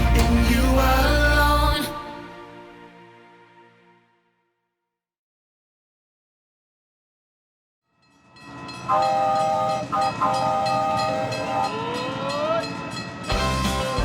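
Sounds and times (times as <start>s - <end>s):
music with heavy bass: 0.0s - 2.3s, 13.3s - 14.0s
rising whistle-like glide: 8.8s - 12.8s
train horn chord: 8.9s - 12.6s.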